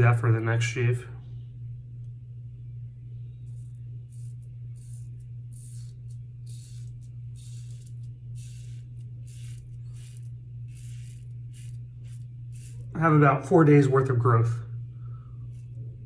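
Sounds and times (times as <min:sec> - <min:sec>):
steady low hum: 0:00.0 - 0:16.0
razor scratching through stubble: 0:03.5 - 0:12.9.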